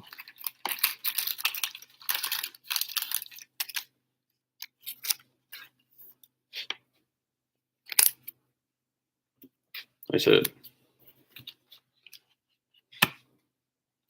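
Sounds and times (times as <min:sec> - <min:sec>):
cards rustling and sliding: 0:00.1 - 0:03.9, 0:04.6 - 0:05.8.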